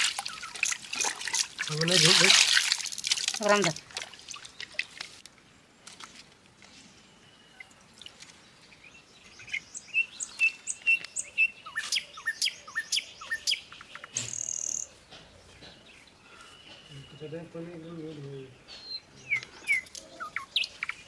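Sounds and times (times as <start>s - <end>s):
small birds chirping: 0.0s - 2.2s, 6.7s - 21.0s.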